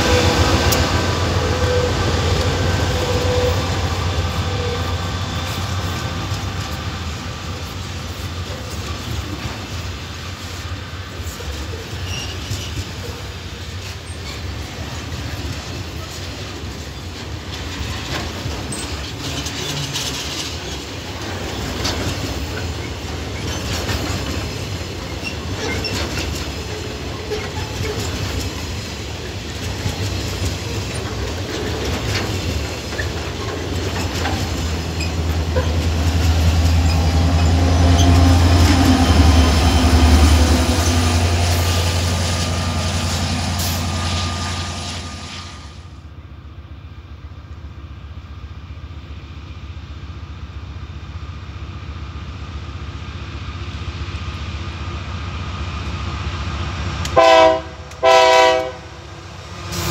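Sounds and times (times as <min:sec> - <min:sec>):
train wheels clacking over rail joints: 0:00.0 - 0:45.3.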